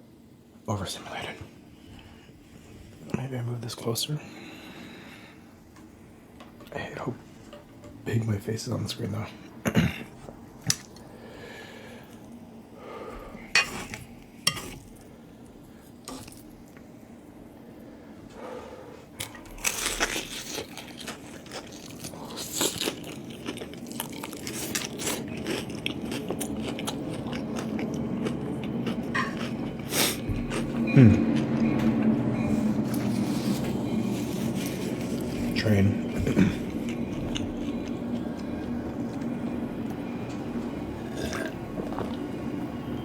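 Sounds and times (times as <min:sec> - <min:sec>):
person chewing crunchy food: 0:19.2 - 0:42.2.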